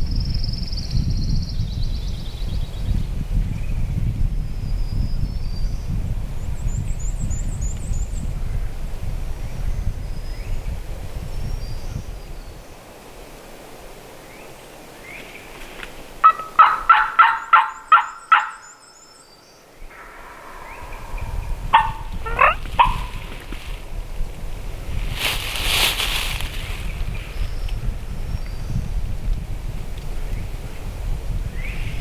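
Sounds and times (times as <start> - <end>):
wind gusts on microphone: 0.0 - 18.0, 19.6 - 32.0
wild turkey gobbling: 16.2 - 18.8, 19.9 - 23.6.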